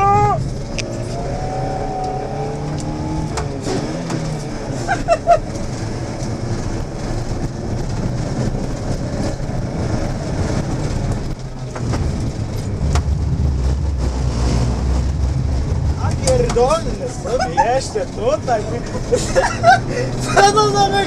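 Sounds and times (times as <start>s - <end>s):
car engine under load: 0.0s - 21.0s.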